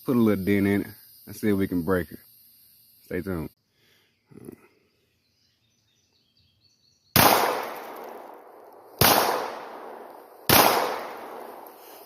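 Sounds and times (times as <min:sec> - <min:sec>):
pistol shots echoing: 0:07.2 - 0:11.8.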